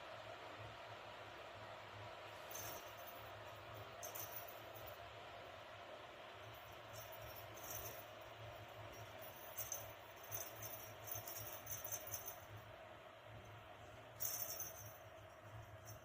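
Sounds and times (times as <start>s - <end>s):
faint steady hum: 0.0s - 16.0s
small bell jingling: 2.3s - 5.1s, 6.3s - 16.0s.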